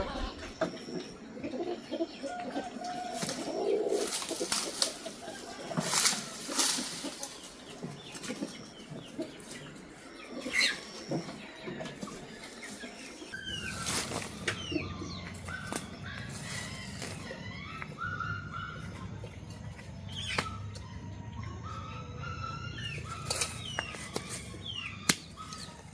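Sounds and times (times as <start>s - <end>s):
birds chirping: 0.0s - 25.9s.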